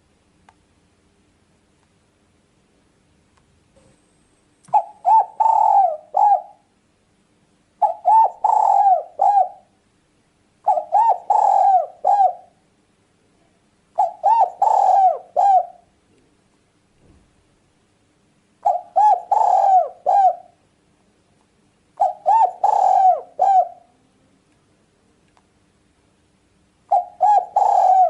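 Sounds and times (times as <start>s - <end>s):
dove cooing: 4.7s - 6.7s, 7.8s - 9.8s, 10.6s - 12.6s, 14.0s - 15.9s, 18.6s - 20.6s, 22.0s - 24.0s, 26.9s - 28.0s.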